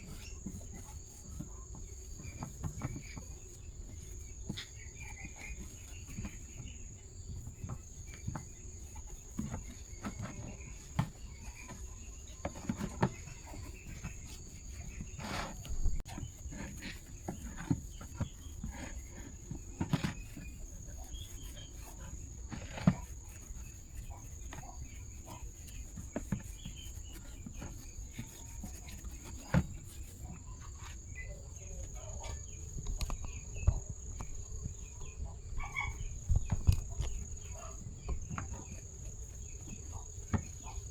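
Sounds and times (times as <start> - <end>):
cricket trill: 14.8 - 40.9.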